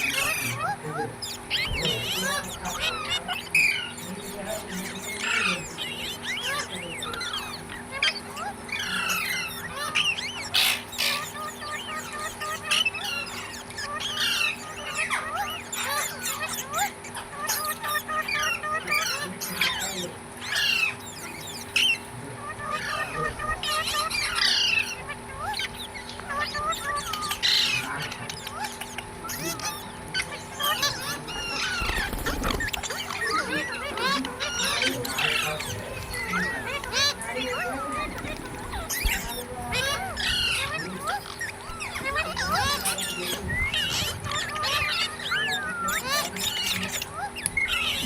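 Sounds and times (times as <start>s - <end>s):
parrots chirping and squawking: 0.0s - 48.0s.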